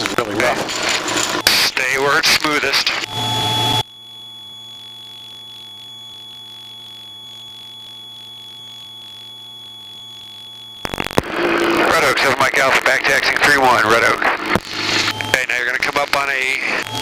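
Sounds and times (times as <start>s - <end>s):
aircraft engine and cabin noise: 0.0s - 3.9s
faint hum: 0.0s - 17.0s
high-pitched electrical whine: 0.0s - 17.0s.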